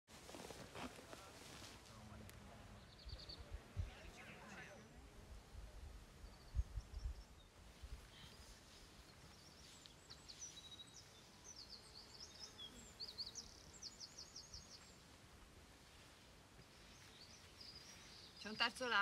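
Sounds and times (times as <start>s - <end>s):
birdsong chirps and trills: 6.2s - 15.2s, 16.6s - 19.0s.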